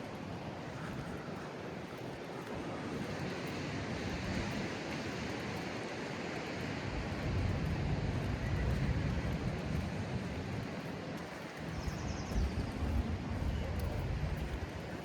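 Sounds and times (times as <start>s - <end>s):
wind on microphone: 6.6s - 15.0s.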